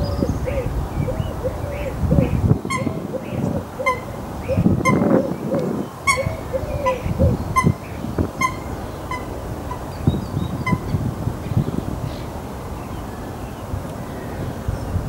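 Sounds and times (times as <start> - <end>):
low arching bird notes: 0.0 - 14.5.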